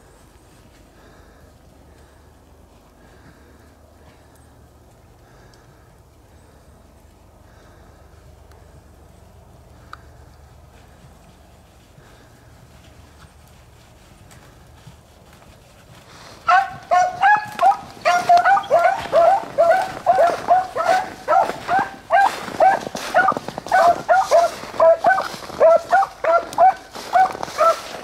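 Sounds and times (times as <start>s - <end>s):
dogs baying: 16.4s - 28.0s.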